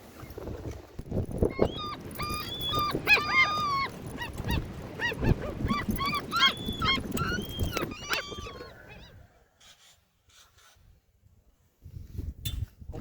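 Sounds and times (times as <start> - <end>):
dog whining and yipping: 1.4 - 9.2.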